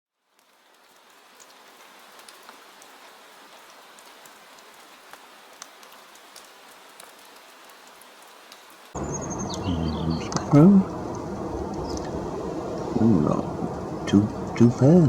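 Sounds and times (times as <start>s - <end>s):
gentle rain patter: 0.1s - 15.0s
rain drop ticks: 0.3s - 15.0s
loud outdoor sound: 8.8s - 15.0s.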